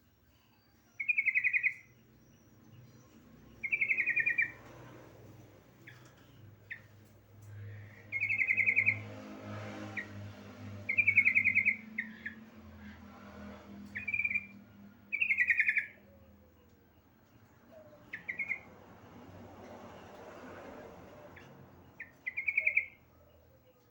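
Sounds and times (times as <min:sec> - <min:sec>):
bulbul chattering calls: 0:15.1 - 0:16.0, 0:22.0 - 0:23.0.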